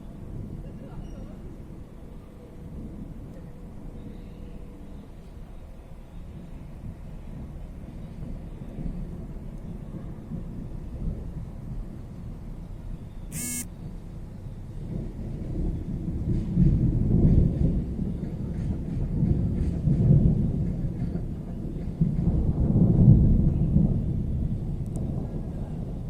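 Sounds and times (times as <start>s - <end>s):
rolling thunder: 14.8s - 26.0s.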